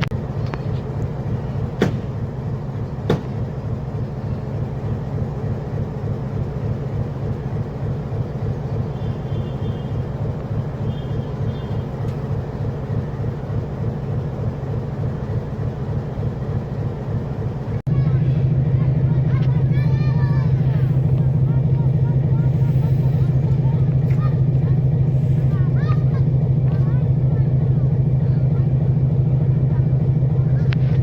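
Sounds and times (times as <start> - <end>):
train rumbling along track: 0.0 - 31.0.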